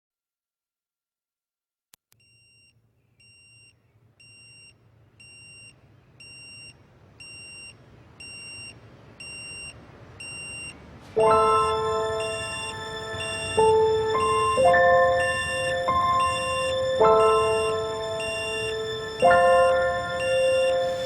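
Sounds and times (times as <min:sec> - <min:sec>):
electronic alarm beeping: 0:02.2 - 0:21.0
loud music: 0:11.2 - 0:21.0.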